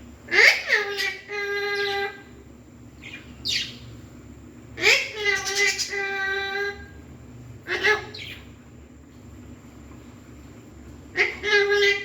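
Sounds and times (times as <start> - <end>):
parakeet calling: 0.3 - 4.1, 4.7 - 7.0, 7.6 - 8.6, 11.1 - 12.0.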